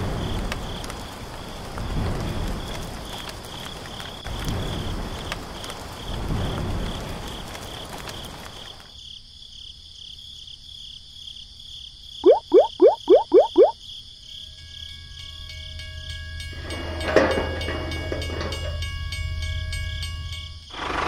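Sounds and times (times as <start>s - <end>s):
rain: 0.0s - 14.6s, 15.5s - 21.0s
cricket chirping: 0.0s - 21.0s
loud rising frog-like call: 12.2s - 13.8s.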